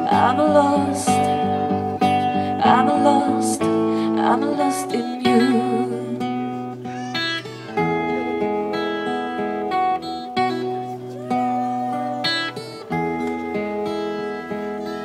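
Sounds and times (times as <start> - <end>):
person singing: 0.0 - 6.6
acoustic guitar strumming chords: 0.0 - 15.0.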